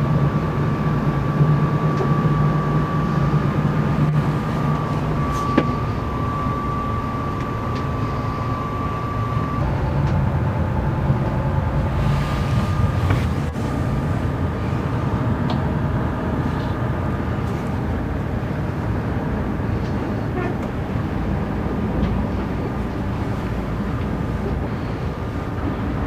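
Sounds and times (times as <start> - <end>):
thin high whine: 0.0 - 15.4
boat engine droning: 0.0 - 26.0.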